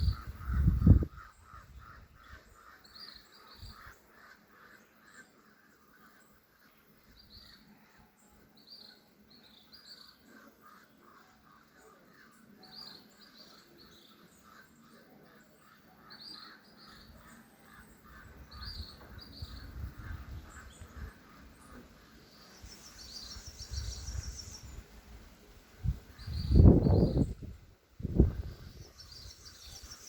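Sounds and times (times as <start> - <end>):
birds chattering: 0.0 - 7.7, 8.8 - 24.9
birds chirping: 0.0 - 25.2, 25.8 - 30.0.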